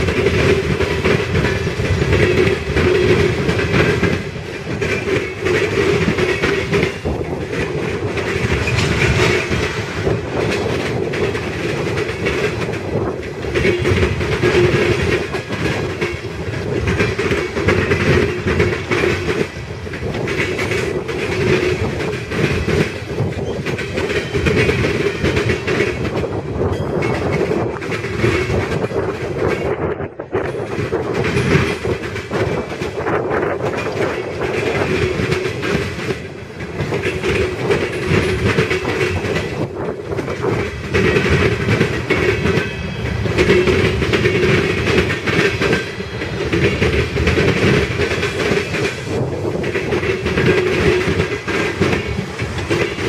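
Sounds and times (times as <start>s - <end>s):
train wheels clattering over rail joints: 0.0s - 53.0s.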